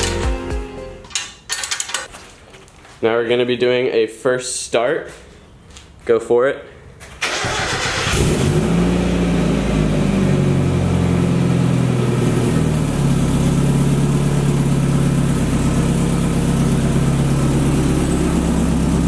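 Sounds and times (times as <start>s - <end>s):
starter cranking engine: 7.2s - 8.5s
loud car engine idling: 9.3s - 19.0s.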